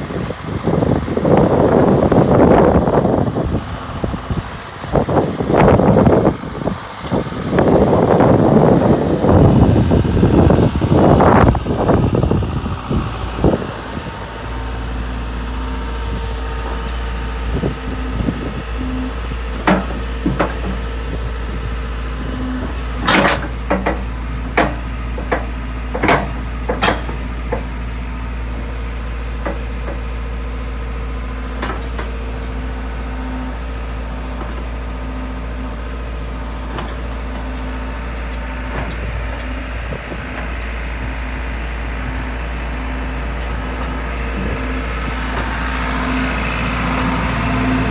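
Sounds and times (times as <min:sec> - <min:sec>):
diesel engine idling: 0:00.0 - 0:47.9
sharp clicks and knocks: 0:19.6 - 0:21.6, 0:22.2 - 0:27.8, 0:28.6 - 0:30.1, 0:31.6 - 0:32.6.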